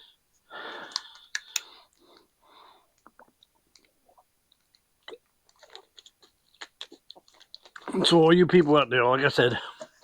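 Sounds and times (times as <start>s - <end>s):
breaths: 0.0s - 3.0s
man drinking: 0.6s - 8.1s
mouth clicks and swallows: 0.8s - 2.3s, 2.9s - 8.0s.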